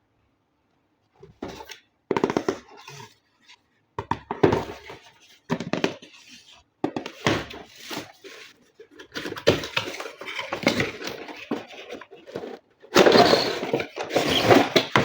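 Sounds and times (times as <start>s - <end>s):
packaging handling noise: 4.2s - 15.0s.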